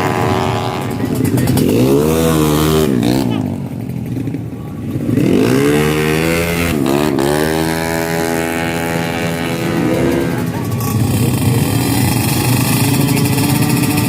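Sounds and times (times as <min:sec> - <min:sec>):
motorcycle engine accelerating hard: 0:00.0 - 0:14.0.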